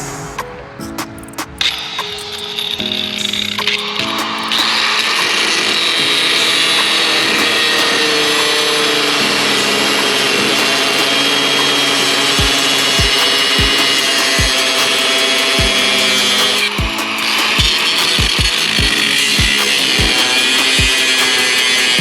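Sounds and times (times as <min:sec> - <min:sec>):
angle grinder cutting: 0:04.6 - 0:22.0.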